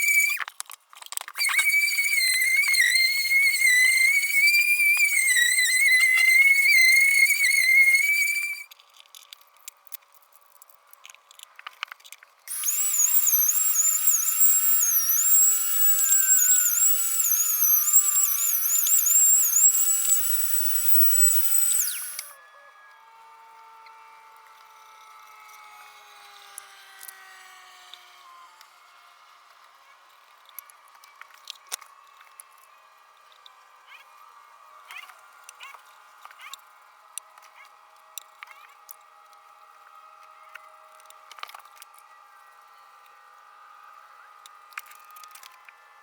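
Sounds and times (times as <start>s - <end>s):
circular saw motor whine: 0.0s - 0.4s, 1.4s - 8.7s, 12.5s - 29.6s
small clicks: 0.0s - 22.4s.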